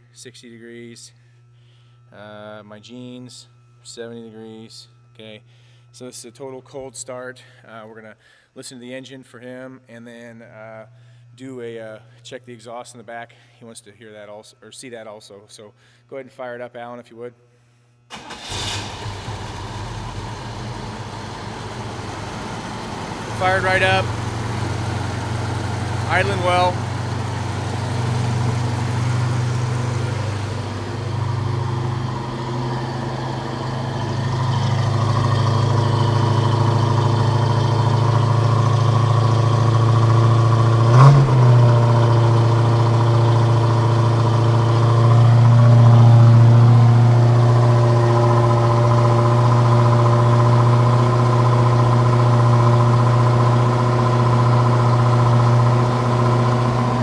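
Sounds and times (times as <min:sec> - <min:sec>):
car engine idling: 0:18.1 - 0:57.0.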